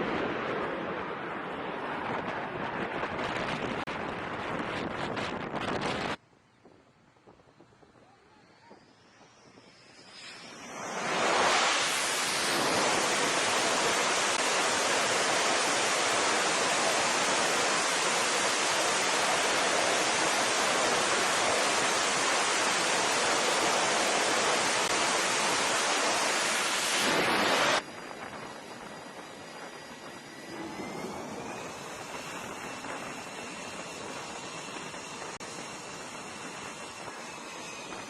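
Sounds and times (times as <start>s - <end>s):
loud rushing noise: 10.2s - 27.8s.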